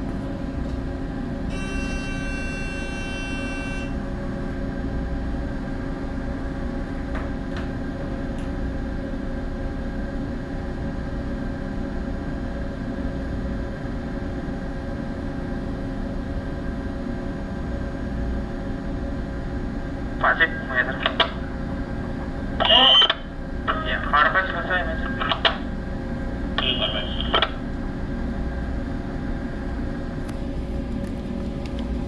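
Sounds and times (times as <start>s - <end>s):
ship engine low rumble and hum: 0.0s - 32.0s
electronic buzzer tone: 1.5s - 4.0s.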